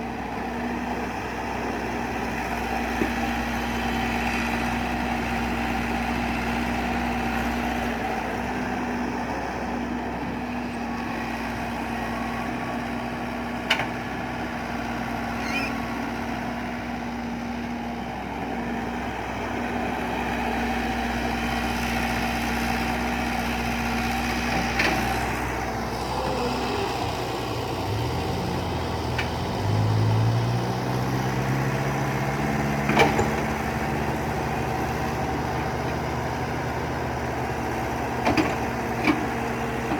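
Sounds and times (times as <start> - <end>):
excavator engine revving: 18.2 - 39.9.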